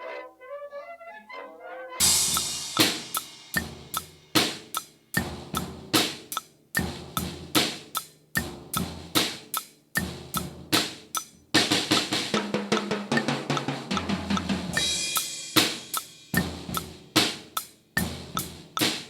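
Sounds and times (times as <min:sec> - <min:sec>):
ringing crash cymbal: 0:02.0 - 0:04.6, 0:14.8 - 0:16.4
drum kit playing rock beat: 0:02.0 - 0:19.0.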